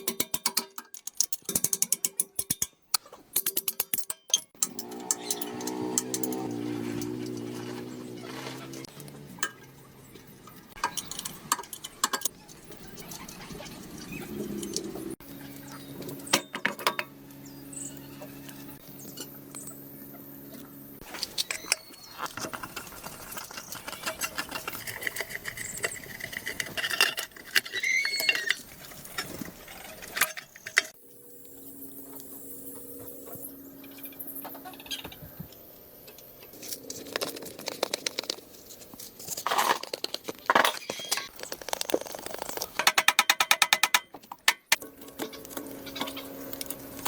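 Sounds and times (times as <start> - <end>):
metal tools clinking and scraping: 0.0 - 15.2, 21.0 - 31.0, 42.4 - 47.0.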